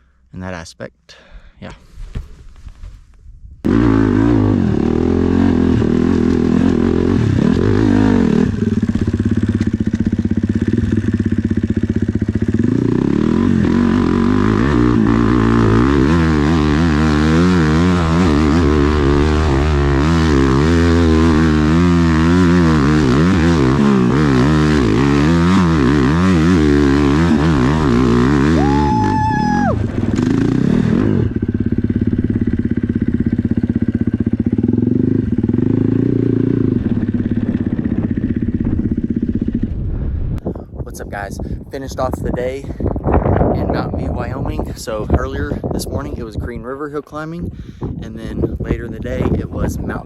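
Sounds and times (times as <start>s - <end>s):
dirt bike engine revving: 3.6s - 39.8s.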